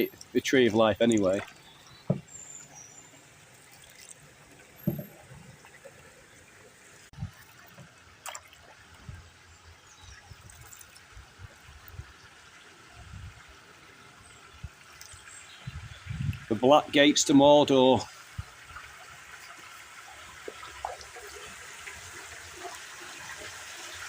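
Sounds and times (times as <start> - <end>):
water dripping off paddle: 0.0 - 6.2, 7.3 - 9.2, 10.0 - 11.2.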